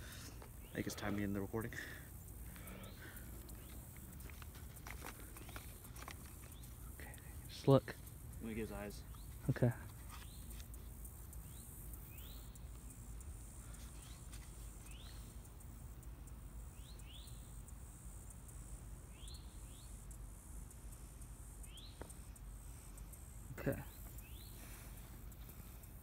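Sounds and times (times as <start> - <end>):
high-pitched hiss: 0.0 - 26.0.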